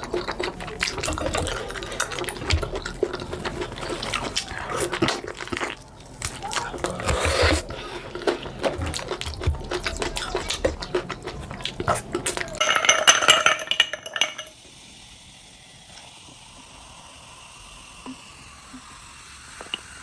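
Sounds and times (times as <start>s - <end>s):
dishes and cutlery clattering: 12.6s - 14.6s.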